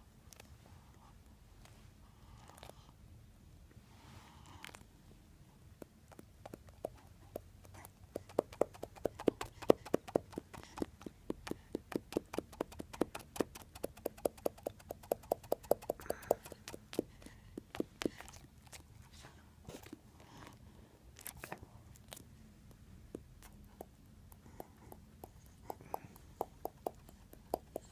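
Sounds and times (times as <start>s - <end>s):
pet tapping rapidly: 6.5s - 18.3s, 23.8s - 27.9s.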